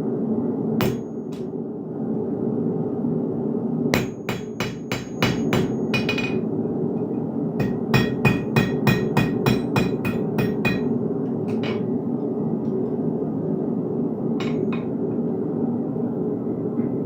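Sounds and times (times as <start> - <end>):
steady low hum: 0.0 - 17.0
hammer ringing on anvil: 0.8 - 1.4, 4.0 - 6.4, 7.6 - 11.8, 14.4 - 14.9.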